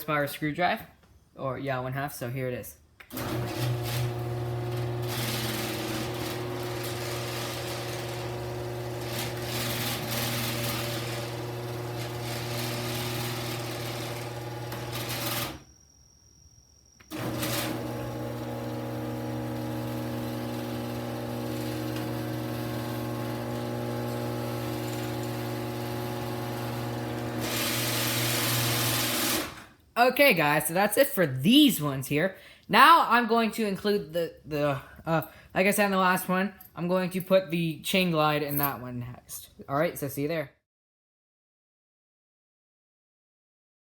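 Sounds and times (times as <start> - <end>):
garage door opener motor humming: 3.1 - 15.8, 17.0 - 29.7.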